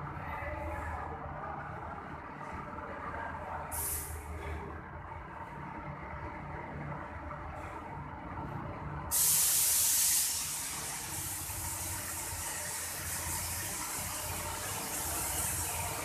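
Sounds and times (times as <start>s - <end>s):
paint sprayer hissing: 9.1s - 16.0s.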